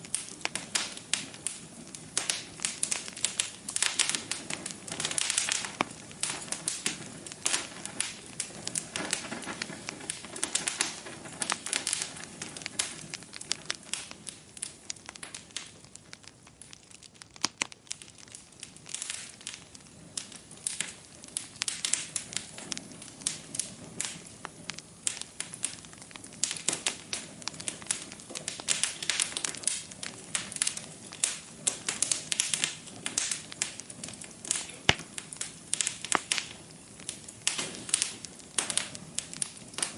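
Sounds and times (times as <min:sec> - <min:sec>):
fire crackling and popping: 0:00.0 - 0:39.9
soft hiss of flame: 0:00.0 - 0:39.9.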